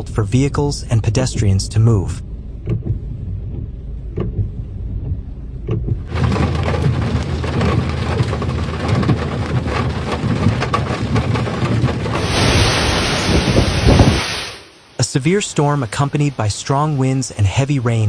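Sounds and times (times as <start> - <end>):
low rumble: 0.8 - 15.0
heavy rain: 6.1 - 17.8.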